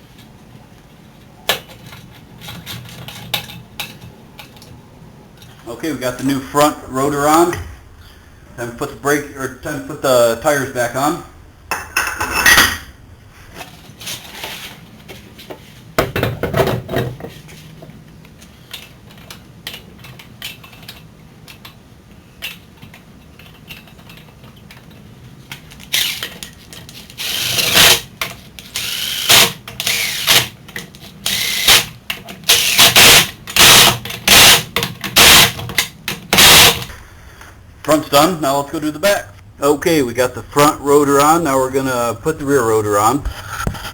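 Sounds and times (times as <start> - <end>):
impact wrench bursts: 25.9 - 26.3, 27.2 - 28.1, 28.7 - 30.6, 31.2 - 36.9.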